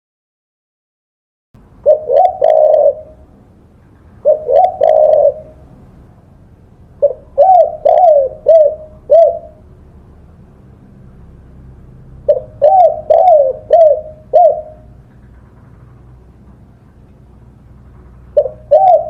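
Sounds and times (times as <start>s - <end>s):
faint low hum: 1.6s - 19.0s
dove cooing: 1.8s - 3.4s, 4.2s - 5.9s, 7.0s - 9.6s, 12.2s - 15.7s, 18.1s - 19.0s.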